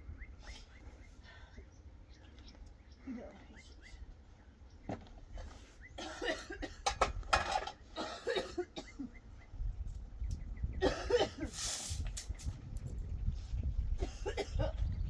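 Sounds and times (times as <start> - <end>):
woman coughing harshly: 6.0 - 7.1, 8.0 - 9.1, 10.8 - 11.6, 14.0 - 14.8.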